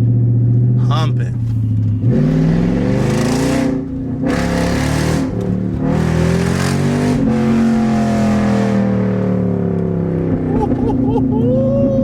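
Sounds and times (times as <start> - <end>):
car engine revving hard: 2.0 - 11.0.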